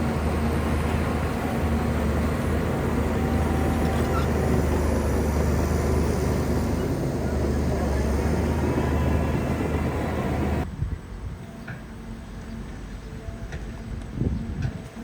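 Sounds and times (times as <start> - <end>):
diesel engine running: 0.0 - 10.6.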